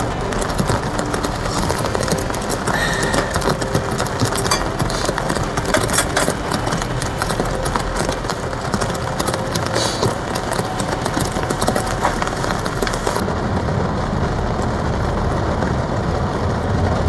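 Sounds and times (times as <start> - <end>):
heavy rain drumming on a tarp: 0.0 - 17.0.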